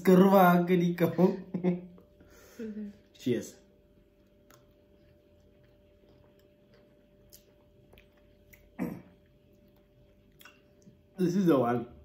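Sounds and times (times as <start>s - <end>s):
faint chewing and mouth clicks: 4.1s - 11.2s.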